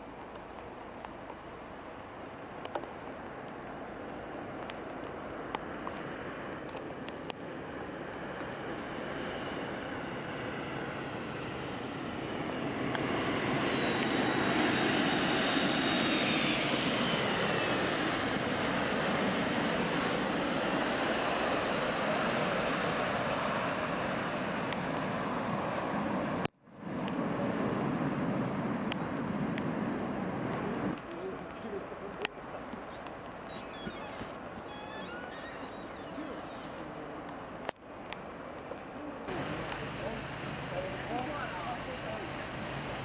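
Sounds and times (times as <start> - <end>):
jetliner roaring past: 5.3 - 31.0, 39.2 - 43.0.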